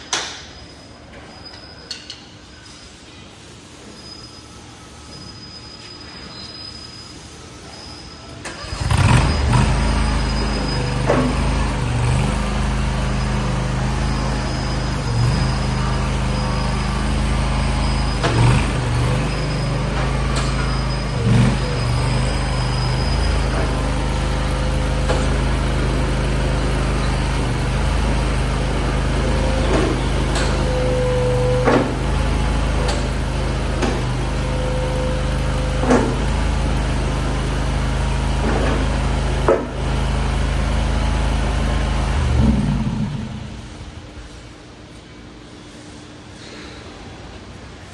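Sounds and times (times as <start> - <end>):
skid-steer loader engine running: 5.0 - 47.9.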